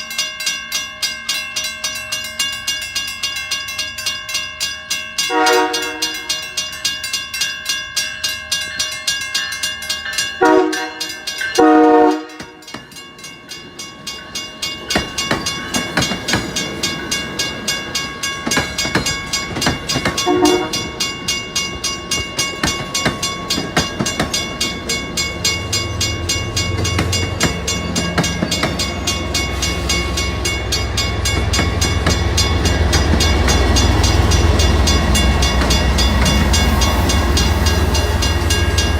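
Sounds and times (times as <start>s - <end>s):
railroad crossing bell ringing: 0.0s - 38.9s
locomotive horn blasts: 5.3s - 6.3s, 10.4s - 12.6s, 20.2s - 20.9s
train rumbling past: 5.3s - 38.9s.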